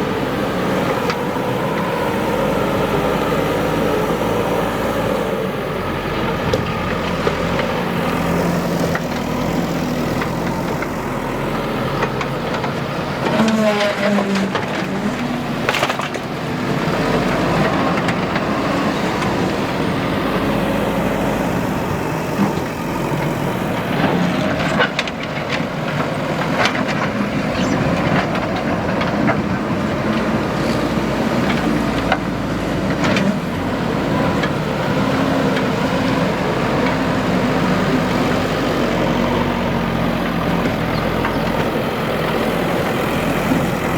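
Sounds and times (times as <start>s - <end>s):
diesel engine under load: 0.0s - 43.9s.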